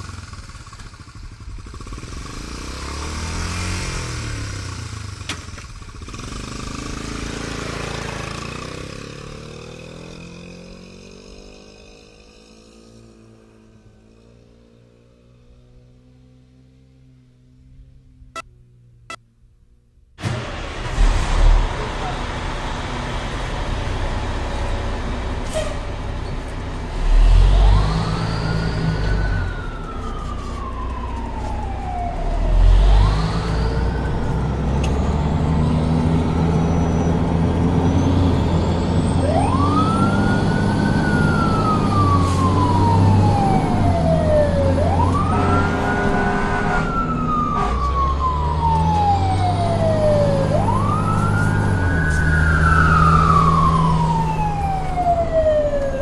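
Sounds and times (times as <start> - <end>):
fire truck siren wailing: 20.2 - 56.0.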